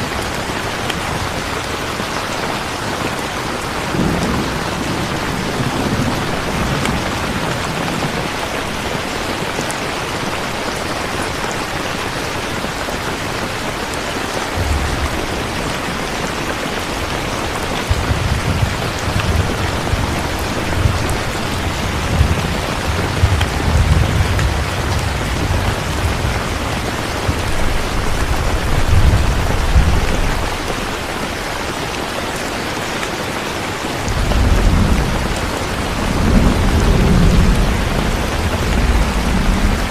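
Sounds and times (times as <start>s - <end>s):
steady rain: 0.0s - 39.9s
rolling thunder: 3.7s - 8.8s, 14.5s - 30.9s, 34.0s - 39.9s.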